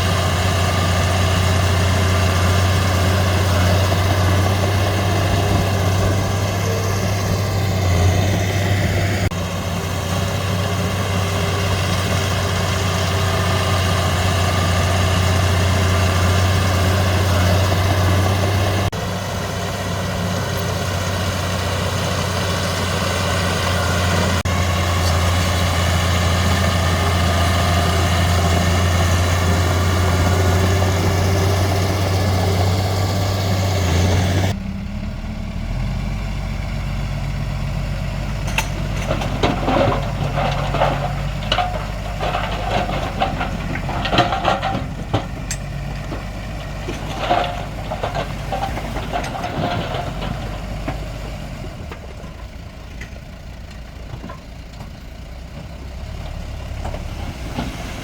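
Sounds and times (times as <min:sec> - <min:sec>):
diesel engine running: 0:00.0 - 0:58.0
metallic clanks and knocks: 0:38.4 - 0:51.2.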